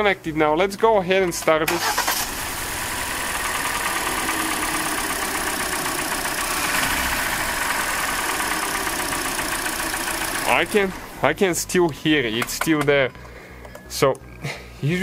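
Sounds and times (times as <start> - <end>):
car engine idling roughly: 1.8 - 10.9
steady engine tick: 3.3 - 10.8.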